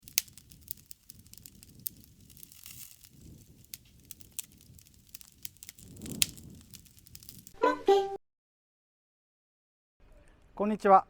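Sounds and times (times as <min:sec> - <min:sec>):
wood fire crackling: 0:00.0 - 0:07.6.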